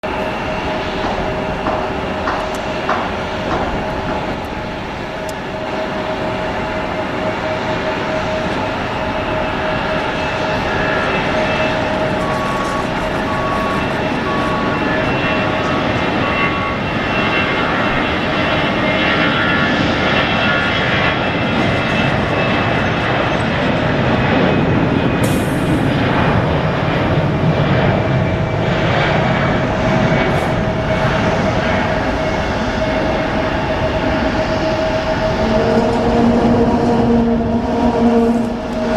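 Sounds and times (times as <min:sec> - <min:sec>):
jet engine noise with high whine: 0:00.0 - 0:38.9
faint beep: 0:11.4 - 0:15.6.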